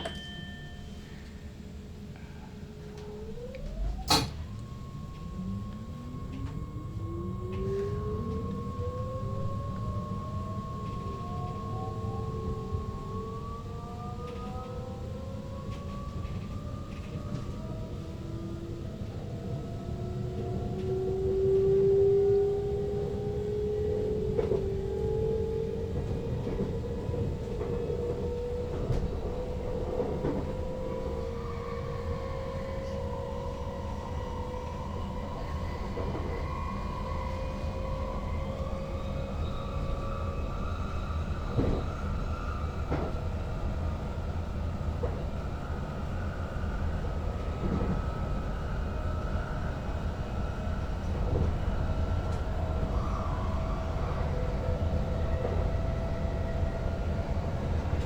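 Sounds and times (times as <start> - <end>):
electric train motors whining: 0.0 - 23.2
wheels rumbling on rails: 0.0 - 58.0.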